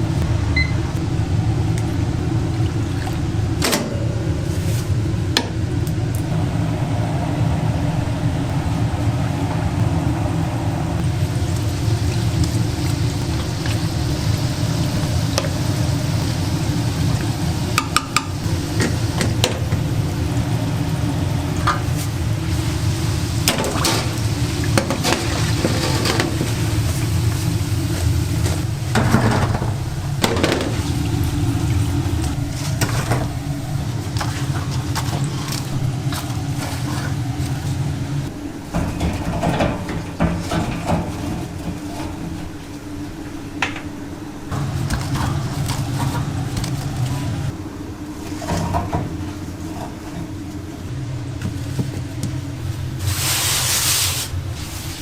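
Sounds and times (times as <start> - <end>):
low machine hum: 0.0 - 55.0
utensils and pans clattering: 38.8 - 42.3.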